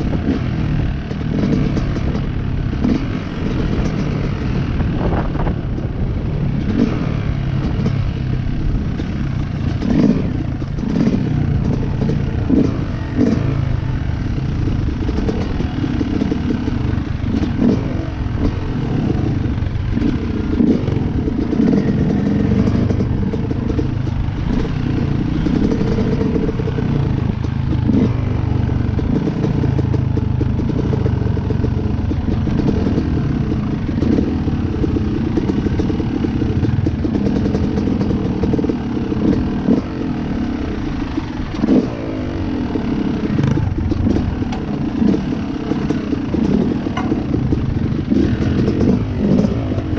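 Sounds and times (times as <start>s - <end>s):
dirt bike engine revving: 0.0s - 5.6s, 6.6s - 49.9s
rattles and knocks: 43.4s - 49.9s.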